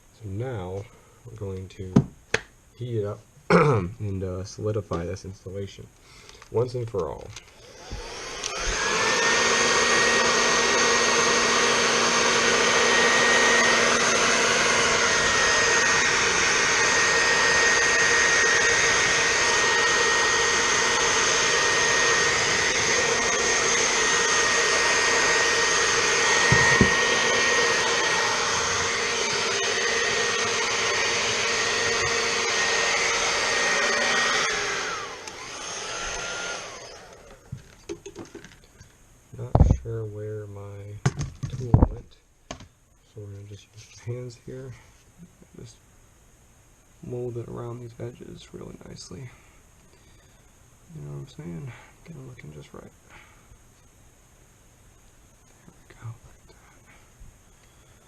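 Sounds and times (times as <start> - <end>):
hot-air blower whining: 7.5 - 38.6.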